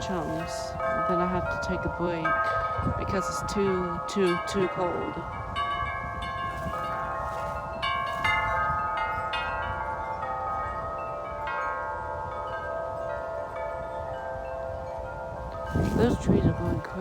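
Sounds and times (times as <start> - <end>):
wind chimes ringing: 0.0 - 17.0
wind rumble on microphone: 0.0 - 17.0.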